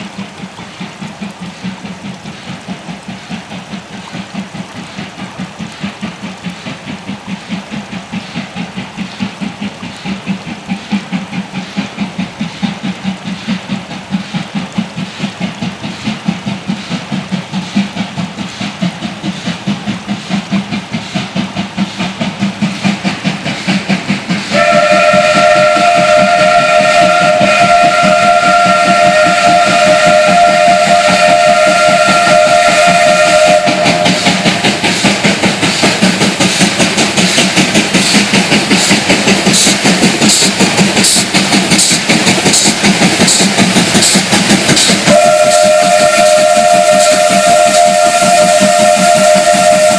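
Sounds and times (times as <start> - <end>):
steam locomotive exhaust beats: 0.0 - 49.9
steam whistle blast: 24.5 - 34.6, 45.0 - 49.9.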